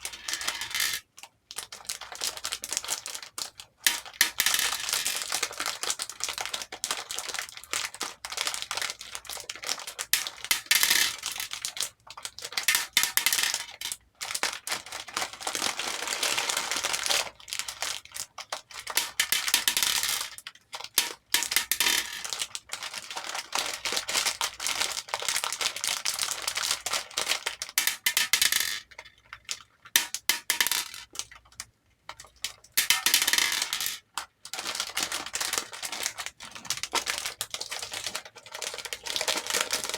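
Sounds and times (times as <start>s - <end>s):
beads clattering in a bowl: 0.0s - 1.0s, 3.9s - 5.3s, 18.8s - 20.4s, 21.0s - 22.4s, 27.8s - 29.0s, 30.0s - 31.2s, 32.8s - 34.0s.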